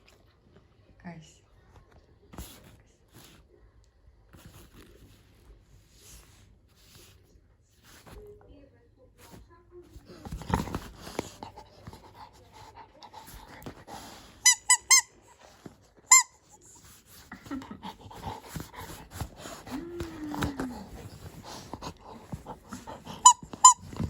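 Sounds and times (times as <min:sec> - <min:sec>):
squeaky dog toy squeaking: 0:14.4 - 0:15.3, 0:16.1 - 0:16.4, 0:23.1 - 0:24.0.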